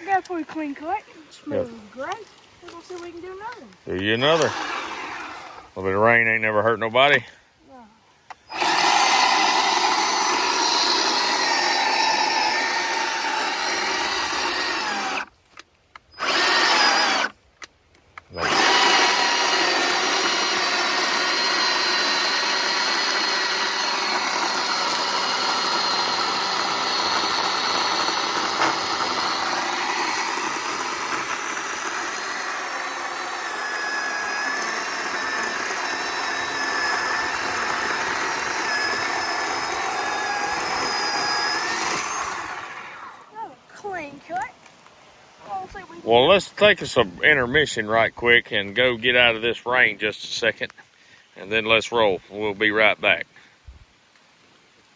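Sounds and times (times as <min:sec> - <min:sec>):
electric chainsaw cutting log: 0:03.9 - 0:05.8, 0:08.4 - 0:15.3, 0:16.2 - 0:17.4, 0:18.2 - 0:43.4.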